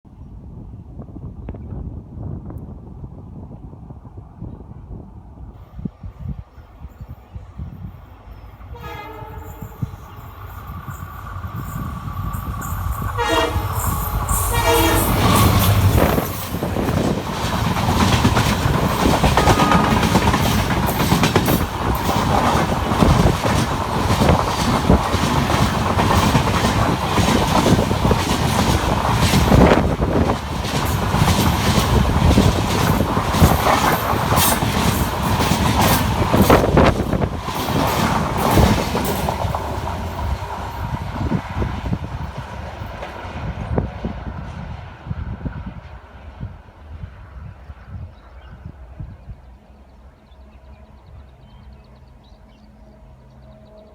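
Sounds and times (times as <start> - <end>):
train coaches rumbling past: 4.2 - 53.9
locomotive horn: 8.7 - 10.4, 13.0 - 16.2, 19.4 - 20.2
wheel clatter over rail joints: 14.1 - 40.3.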